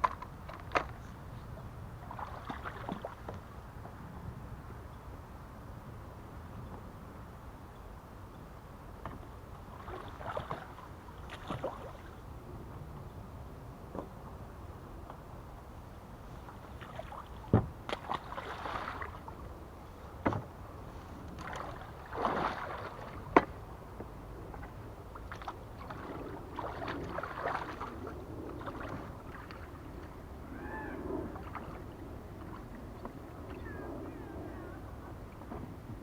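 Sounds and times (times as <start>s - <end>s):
water sloshing and splashing: 2.0s - 3.5s, 9.7s - 12.2s, 16.5s - 19.6s, 20.2s - 23.7s, 24.4s - 30.2s, 31.2s - 33.6s
hollow knocks on boat hull: 17.5s - 18.1s, 20.2s - 20.5s.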